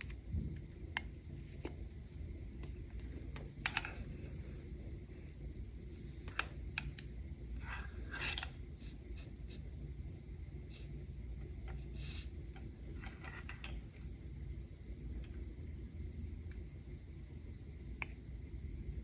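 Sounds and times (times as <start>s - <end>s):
low steady hum: 0.0s - 19.0s
light clicks and scrapes: 12.9s - 13.9s.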